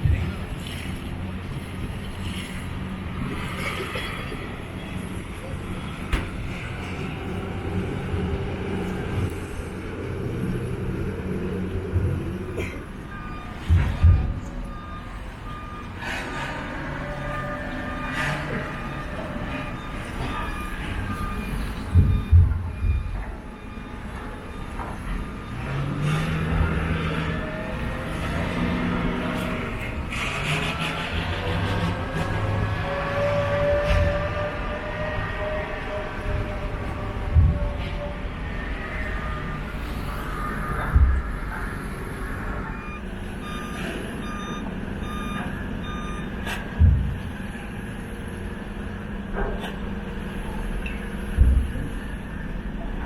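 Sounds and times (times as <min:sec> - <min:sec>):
engine droning: 0:00.0 - 0:53.0.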